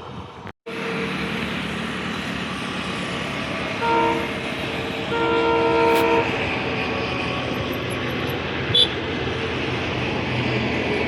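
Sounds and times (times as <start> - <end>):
train rumbling past: 0.0 - 11.0
train horn: 3.7 - 7.6, 8.7 - 9.0.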